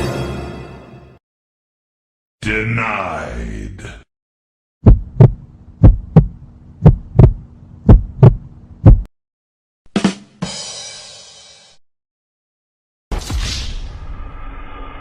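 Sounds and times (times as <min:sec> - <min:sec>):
heartbeat thumps: 0:04.8 - 0:09.1
steady low hum: 0:04.8 - 0:09.1.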